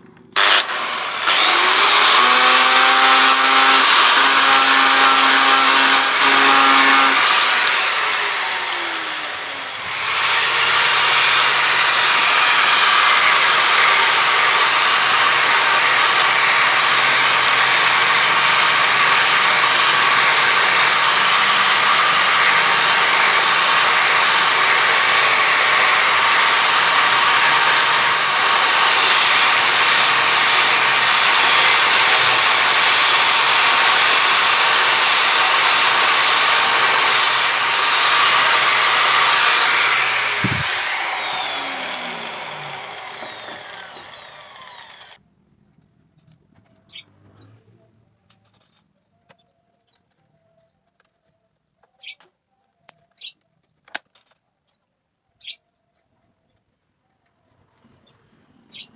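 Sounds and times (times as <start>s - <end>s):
handheld electric tool whirring: 0.4s - 45.2s.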